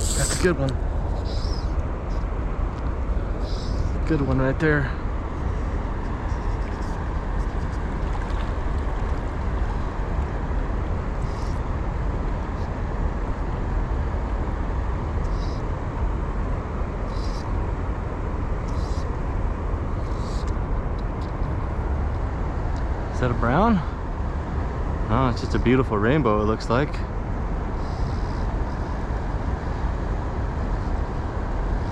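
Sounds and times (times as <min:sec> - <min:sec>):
faint high hisses: 0:00.0 - 0:01.7
wind rumble on microphone: 0:00.0 - 0:31.9.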